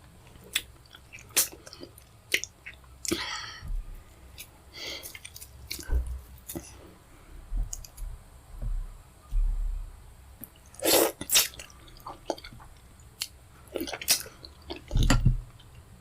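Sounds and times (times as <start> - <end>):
wet chewing: 10.4 - 15.2.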